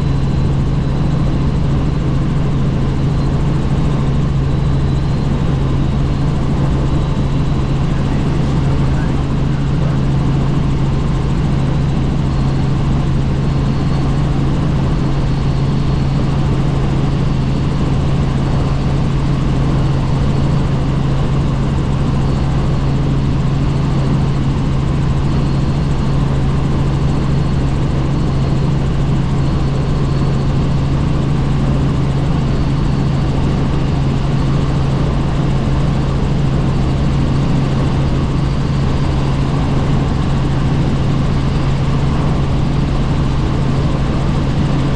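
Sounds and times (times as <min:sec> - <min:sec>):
faint high whine: 0:00.0 - 0:21.7
helicopter rotor and engine drone: 0:00.0 - 0:44.9.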